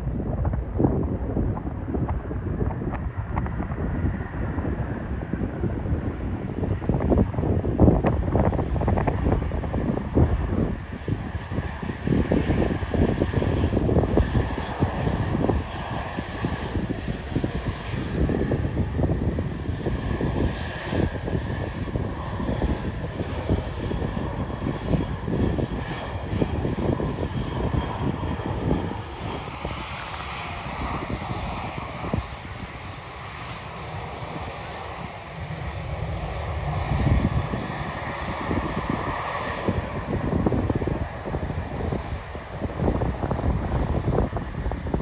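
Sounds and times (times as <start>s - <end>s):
jet engines whining and roaring: 0.0s - 45.0s
wind buffeting microphone: 0.0s - 45.0s.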